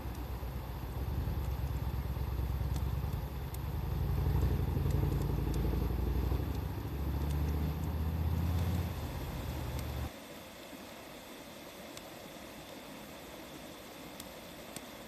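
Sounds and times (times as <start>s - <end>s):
low engine rumble: 0.0s - 10.1s
wood fire crackling: 0.0s - 10.1s.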